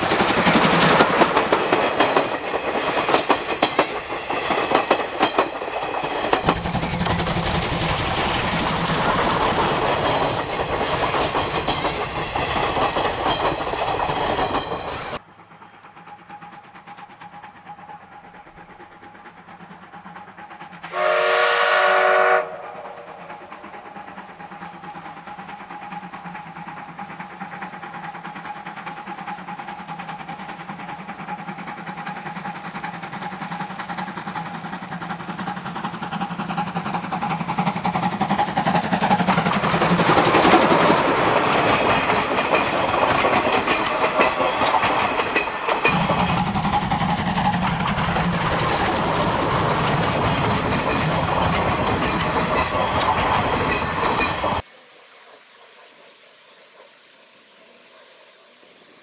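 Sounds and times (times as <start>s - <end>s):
train wheels on rails: 0.0s - 54.7s
steam locomotive whistle: 20.8s - 23.2s.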